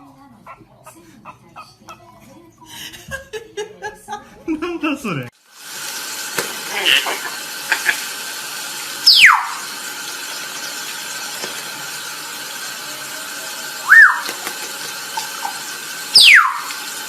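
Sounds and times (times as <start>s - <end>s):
running water hiss: 5.4s - 17.0s
parrot squealing: 9.0s - 9.7s, 13.8s - 14.4s, 15.5s - 16.8s.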